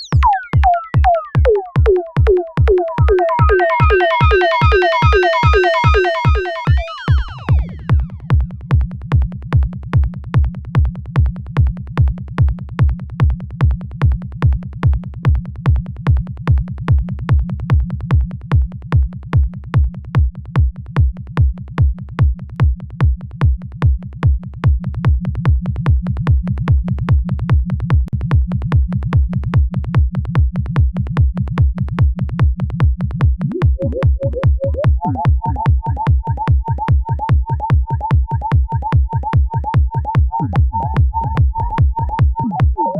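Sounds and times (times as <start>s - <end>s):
low synth bassline: 0.0s - 8.4s, 33.4s - 42.9s
synthesized kick drum: 0.0s - 42.9s
higher synth line: 0.2s - 8.1s.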